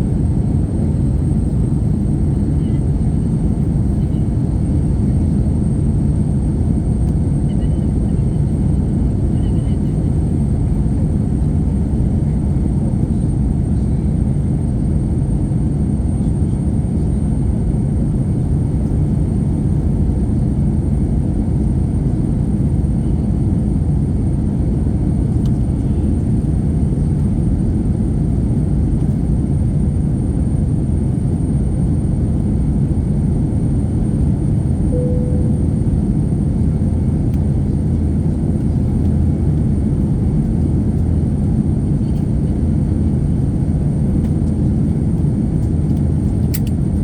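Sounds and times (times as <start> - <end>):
airliner cabin roar: 31.8 - 47.0.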